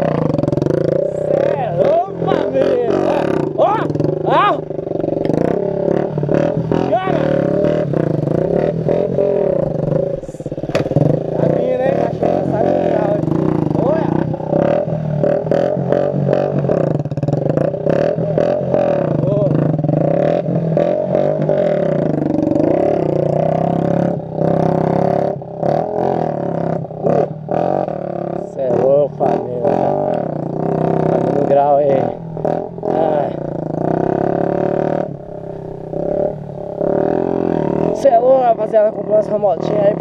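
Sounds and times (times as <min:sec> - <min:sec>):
motorcycle engine revving: 0:00.0 - 0:40.0
sharp engine pops: 0:10.6 - 0:11.2.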